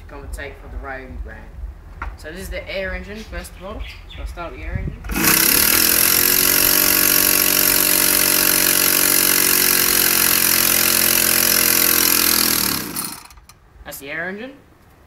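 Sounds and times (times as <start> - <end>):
compressed-air engine running: 5.1 - 13.5.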